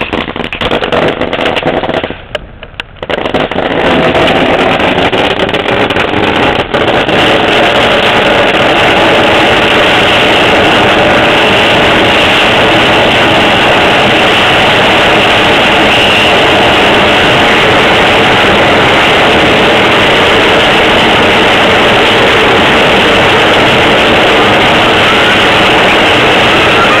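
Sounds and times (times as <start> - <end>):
fireworks crackling and hissing: 0.0 - 27.0.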